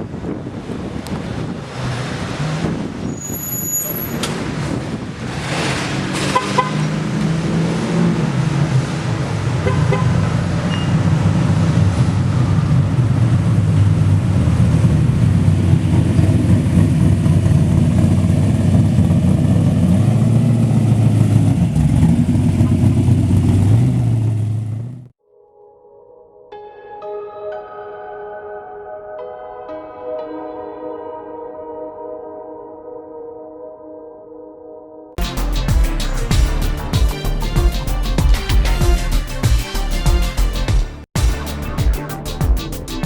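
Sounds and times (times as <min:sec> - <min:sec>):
car engine running: 0:11.2 - 0:25.1.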